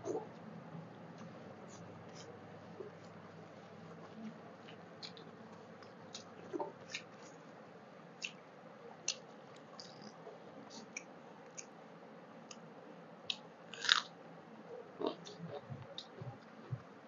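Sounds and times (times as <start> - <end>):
mouth clicks and smacks chewing: 8.2 - 8.4.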